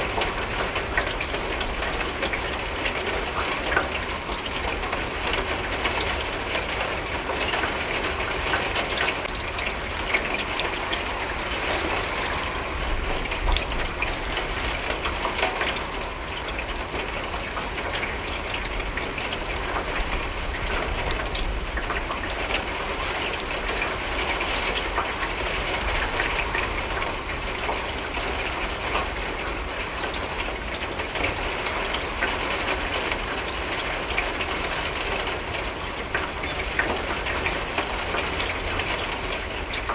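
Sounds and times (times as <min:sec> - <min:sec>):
rain pattering on a window: 0:00.0 - 0:39.9.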